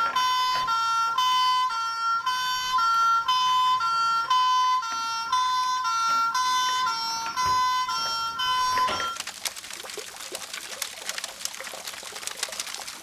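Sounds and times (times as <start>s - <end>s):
toy fire engine siren: 0.0s - 9.2s.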